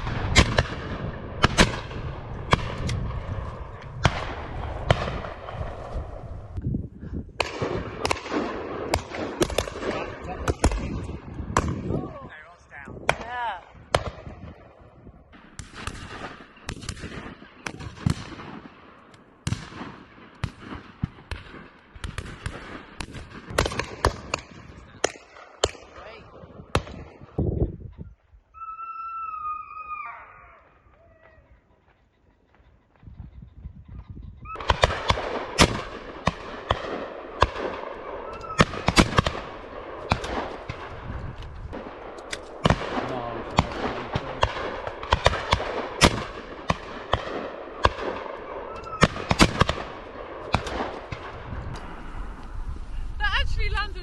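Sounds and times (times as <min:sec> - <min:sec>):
shotguns firing: 0:00.0 - 0:06.2, 0:07.4 - 0:12.0, 0:13.0 - 0:14.7, 0:15.3 - 0:27.3, 0:34.6 - 0:52.1.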